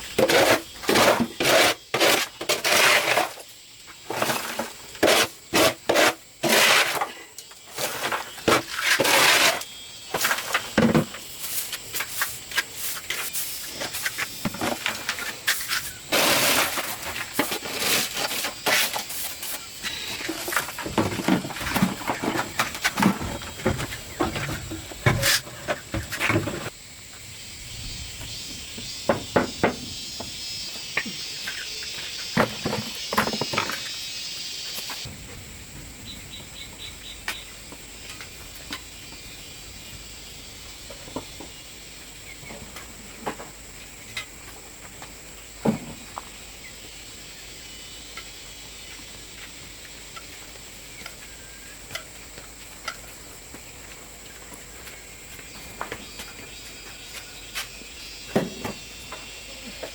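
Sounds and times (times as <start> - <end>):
high insect trill: 0.0 - 59.9.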